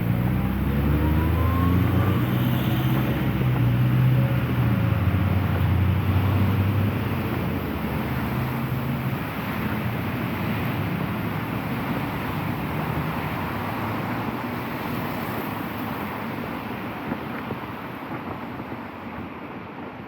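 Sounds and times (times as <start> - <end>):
vehicle passing: 0.0 - 15.6
wind on microphone: 0.0 - 20.0.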